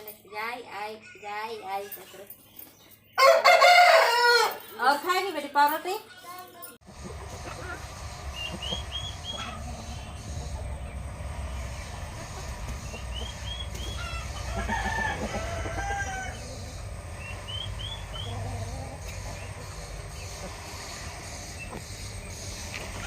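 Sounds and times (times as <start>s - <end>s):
rooster crowing: 3.2s - 4.7s, 13.9s - 16.8s
steady low rumble: 6.9s - 23.0s.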